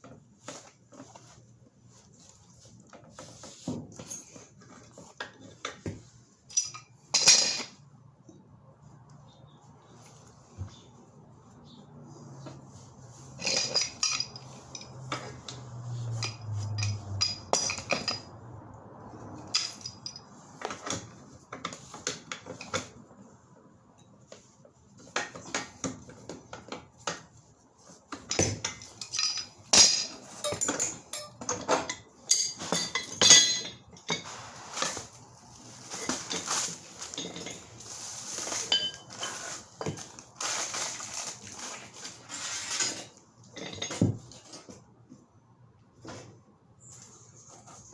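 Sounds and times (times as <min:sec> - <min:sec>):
metal pipes clinking and knocking: 0:06.5 - 0:07.8, 0:13.4 - 0:18.3, 0:19.4 - 0:21.0, 0:28.2 - 0:35.0, 0:38.4 - 0:40.0, 0:42.4 - 0:44.3.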